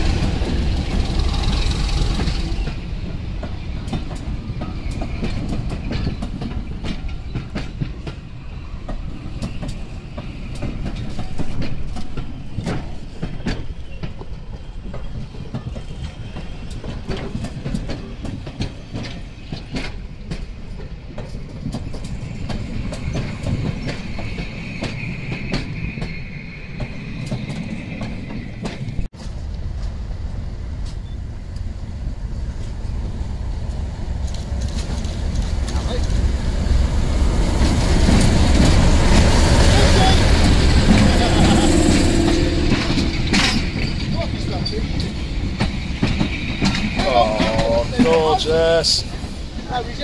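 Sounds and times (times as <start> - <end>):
wheels clicking over rail joints: 0.0 - 30.0, 33.6 - 50.0
train rumbling past: 0.0 - 50.0
high wheel squeal: 22.2 - 29.1, 37.7 - 50.0.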